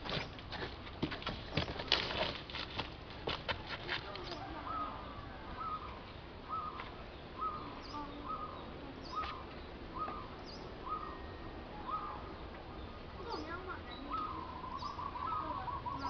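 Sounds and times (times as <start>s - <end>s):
faint high bird chirps: 4.3s - 16.0s.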